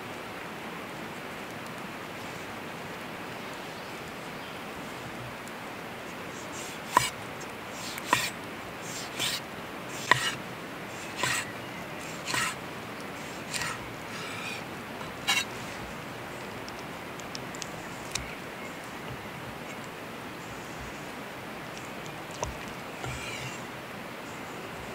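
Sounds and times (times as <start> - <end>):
short scraping rasp: 6.4 - 12.6, 13.2 - 15.9, 23.0 - 23.6
sharp taps: 10.0 - 10.4.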